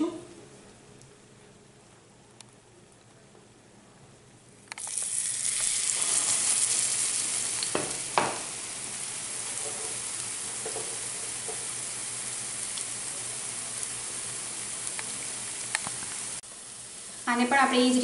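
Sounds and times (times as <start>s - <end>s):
battered bread sizzling in oil: 4.7s - 18.0s.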